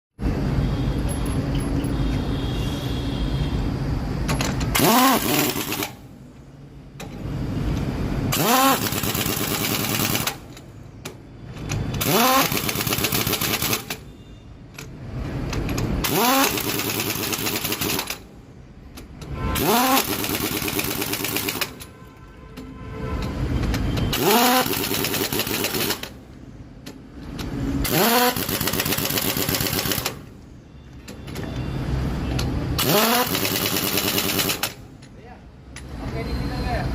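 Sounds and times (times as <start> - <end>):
air impact wrench whining and hammering: 4.1 - 6.2, 6.9 - 14.1, 14.7 - 22.6, 23.2 - 31.6, 32.2 - 36.0.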